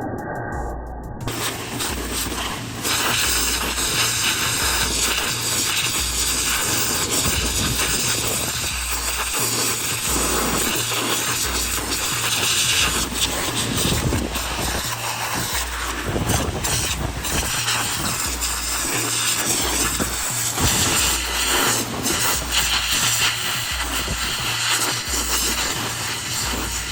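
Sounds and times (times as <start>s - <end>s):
music with repeating bass line: 0.0s - 26.9s
pressure washer spraying: 1.3s - 26.9s.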